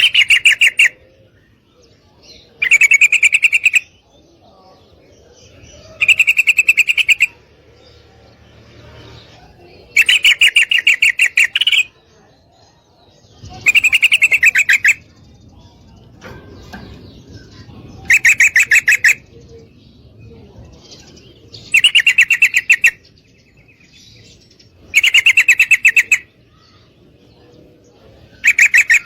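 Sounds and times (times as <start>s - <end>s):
bird chattering call: 0.0s - 1.1s, 2.5s - 4.0s, 5.5s - 7.5s, 9.3s - 12.0s, 13.2s - 15.2s, 16.1s - 19.7s, 21.5s - 23.1s, 24.0s - 26.9s, 28.3s - 29.0s.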